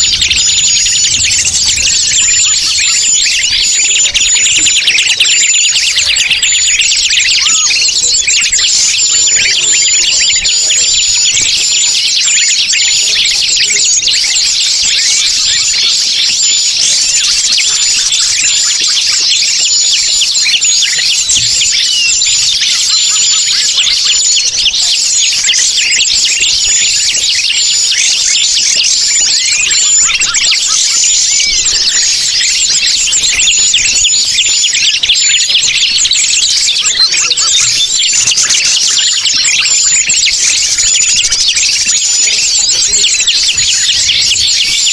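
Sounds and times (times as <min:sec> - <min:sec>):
small birds chirping and trilling: 0:00.0 - 0:44.9.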